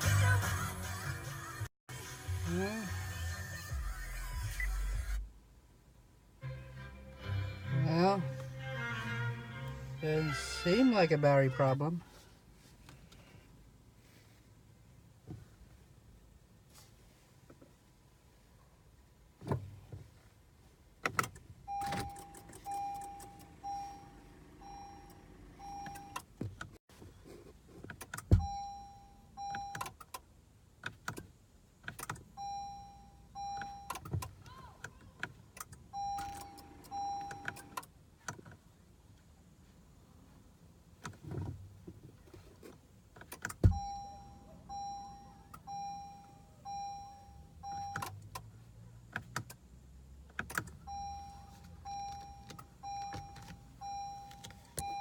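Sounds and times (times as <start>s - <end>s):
car warning chime beeping: 7.7s - 12.0s, 21.2s - 26.7s, 28.2s - 30.2s, 32.0s - 34.5s, 35.6s - 37.9s, 43.5s - 48.4s, 50.4s - 55.0s
clicks and knocks of cabin controls: 15.2s - 15.7s, 19.3s - 20.2s, 21.0s - 23.9s, 24.6s - 26.8s, 27.4s - 32.7s, 33.4s - 39.3s, 40.9s - 44.3s, 46.7s - 49.6s, 50.2s - 55.0s.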